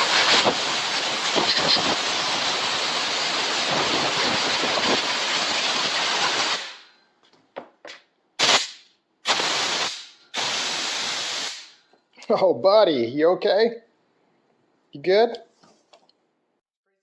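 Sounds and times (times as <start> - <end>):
compressed air blow gun hissing: 0.0 - 6.8, 8.4 - 11.8
short air blasts: 0.0 - 7.0, 8.4 - 11.9.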